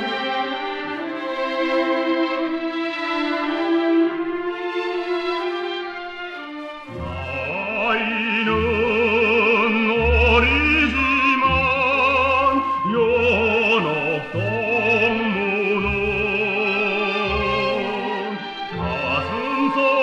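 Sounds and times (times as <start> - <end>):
instrumental accompaniment: 0.0 - 20.0
operatic singing voice: 6.9 - 20.0.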